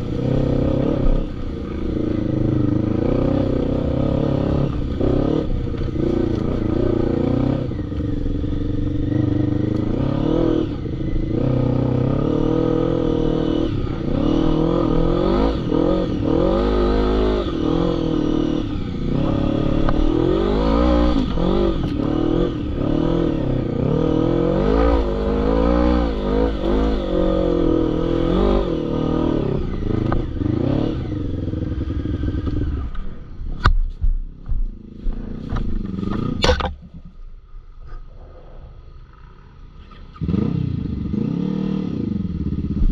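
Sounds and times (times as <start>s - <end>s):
quad bike engine revving: 0.0s - 33.1s, 34.8s - 36.7s, 39.6s - 42.9s.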